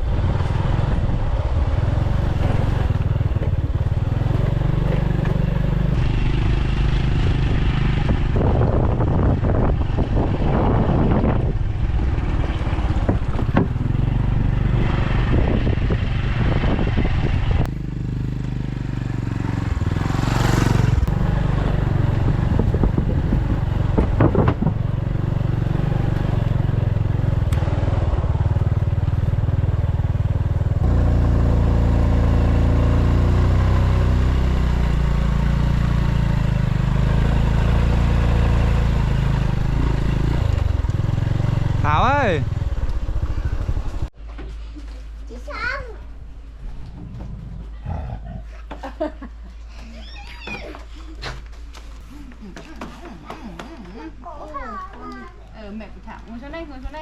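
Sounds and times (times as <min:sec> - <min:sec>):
knocks and clatter: 0:13.0 - 0:14.0, 0:23.9 - 0:24.9.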